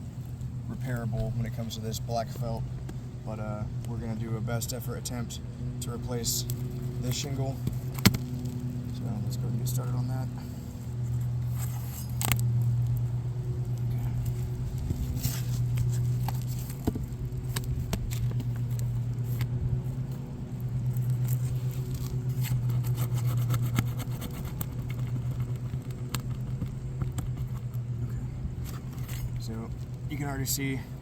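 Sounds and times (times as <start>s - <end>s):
low machine hum: 0.0s - 31.0s
hand tools prying at shingle: 7.0s - 8.6s.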